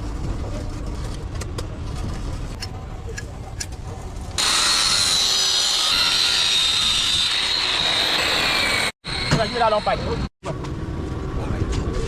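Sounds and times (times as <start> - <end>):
power tool whining: 4.4 - 10.3.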